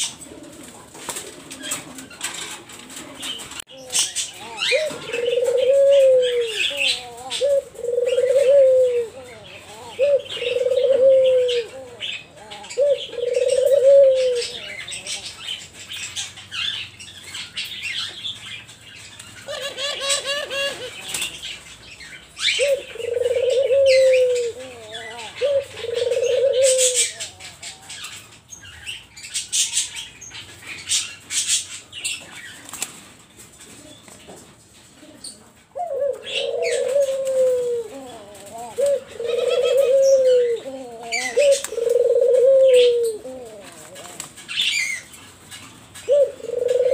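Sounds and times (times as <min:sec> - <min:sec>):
doves cooing: 0:00.0 - 0:18.6, 0:19.3 - 0:46.9
wings flapping: 0:00.5 - 0:03.6, 0:32.6 - 0:33.2.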